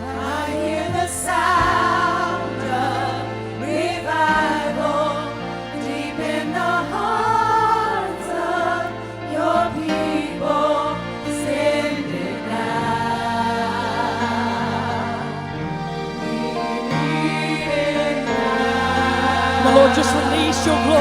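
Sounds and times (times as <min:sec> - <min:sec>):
choir singing wordless lines: 0:00.0 - 0:21.0
keyboard chords: 0:00.0 - 0:21.0.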